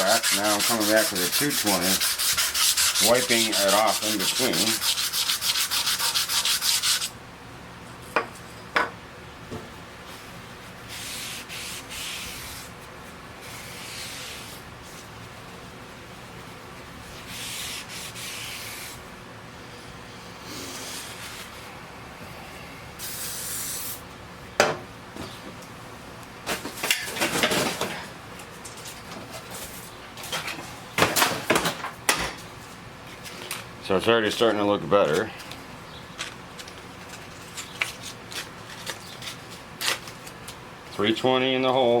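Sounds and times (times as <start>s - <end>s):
sandpaper rubbing on metal: 0.0s - 7.1s, 10.9s - 12.8s, 13.4s - 15.1s, 17.0s - 19.0s, 20.5s - 21.6s, 23.0s - 24.0s.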